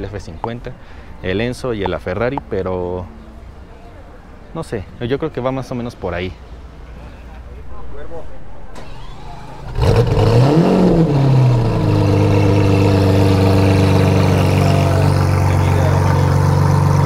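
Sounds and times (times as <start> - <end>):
car engine starting and idling: 8.3 - 17.0.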